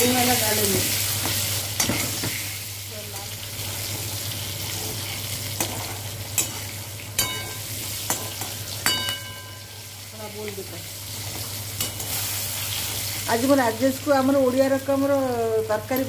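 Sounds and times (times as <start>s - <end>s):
potatoes sizzling in oil: 0.0s - 16.0s
spatula knocking on pan: 7.2s - 9.7s
metal pan ringing: 7.2s - 10.0s.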